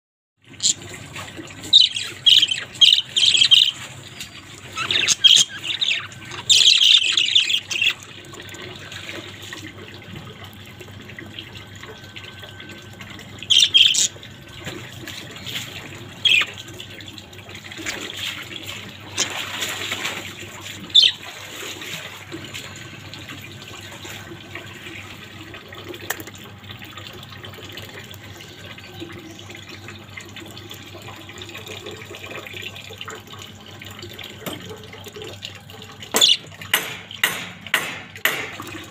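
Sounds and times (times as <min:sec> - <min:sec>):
budgerigars chirping and squawking: 0:00.6 - 0:00.9, 0:01.6 - 0:08.0, 0:13.4 - 0:14.2, 0:16.2 - 0:16.6, 0:20.8 - 0:21.2, 0:36.2 - 0:36.5.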